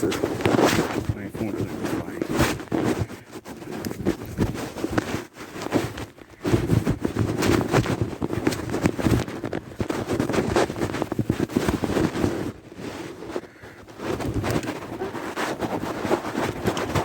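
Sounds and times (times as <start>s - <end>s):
bicycle tyres crunching: 0.0s - 13.6s.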